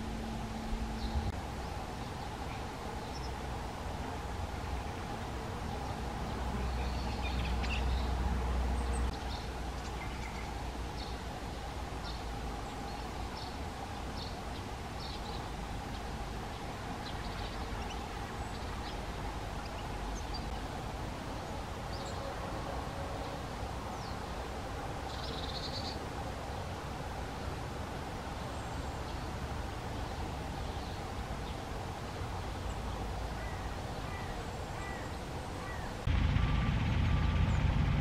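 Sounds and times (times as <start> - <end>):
low rumble: 36.0 - 38.0.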